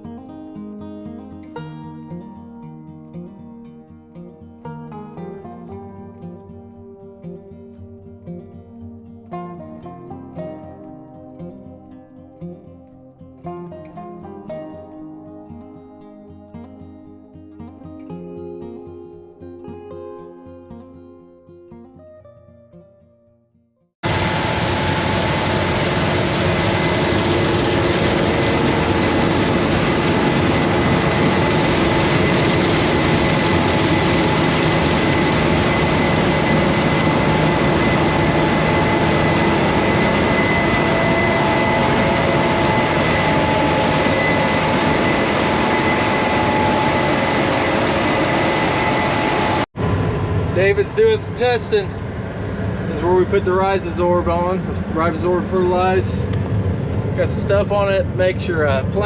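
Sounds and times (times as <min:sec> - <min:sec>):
combine harvester running: 0:24.0 - 0:52.0.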